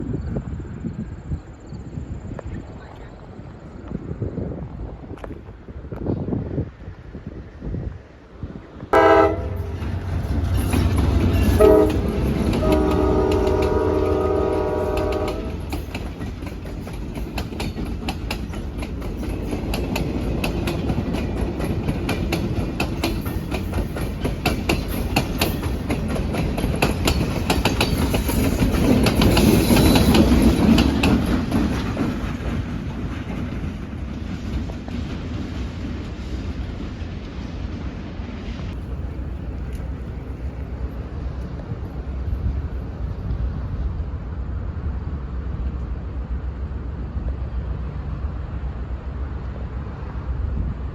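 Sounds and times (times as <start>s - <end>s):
train horn blasts: 8.9s - 10.3s, 11.2s - 15.8s
train wheels clacking over rails: 9.0s - 37.7s.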